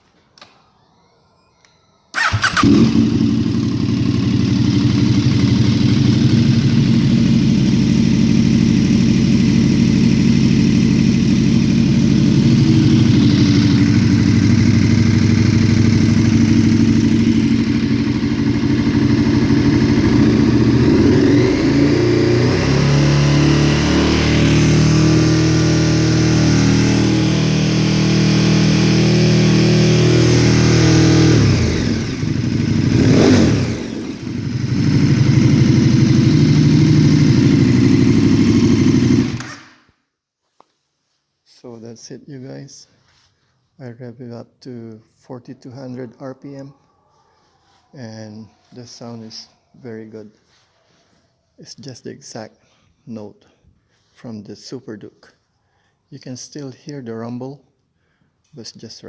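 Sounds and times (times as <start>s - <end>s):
motorcycle engine revving: 2.2s - 39.8s.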